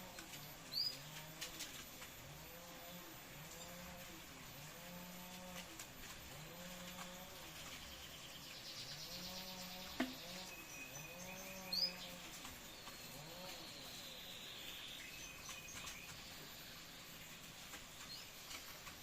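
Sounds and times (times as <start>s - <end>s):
canaries chirping: 6.6s - 12.2s.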